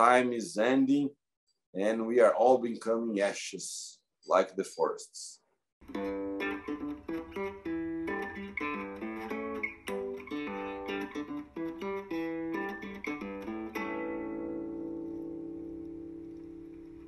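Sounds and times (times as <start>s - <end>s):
acoustic guitar plucking: 5.8s - 17.0s.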